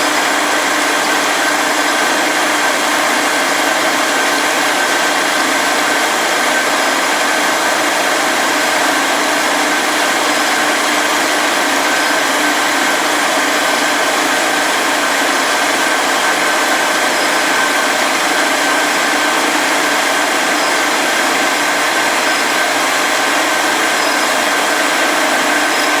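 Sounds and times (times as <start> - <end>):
milling machine running: 0.0 - 26.0
spindle whine: 0.0 - 26.0.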